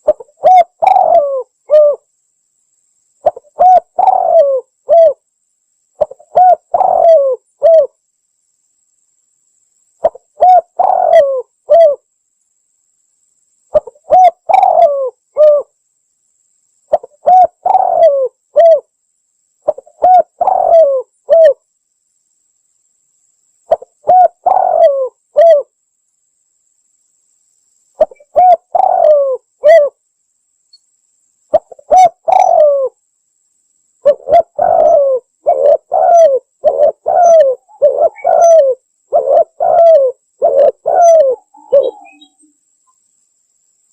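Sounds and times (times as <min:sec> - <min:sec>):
dove cooing: 0:00.0 - 0:02.0, 0:03.2 - 0:05.2, 0:06.0 - 0:07.9, 0:10.0 - 0:12.0, 0:13.7 - 0:15.7, 0:16.9 - 0:18.9, 0:19.6 - 0:21.6, 0:23.7 - 0:25.7, 0:28.0 - 0:30.0, 0:31.5 - 0:33.0, 0:34.0 - 0:42.5.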